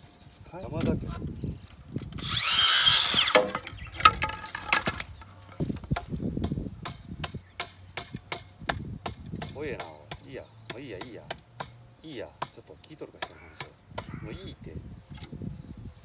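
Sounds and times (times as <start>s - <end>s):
sawing bamboo: 2.2s - 5.0s
sharp wooden knocks: 2.2s - 5.0s.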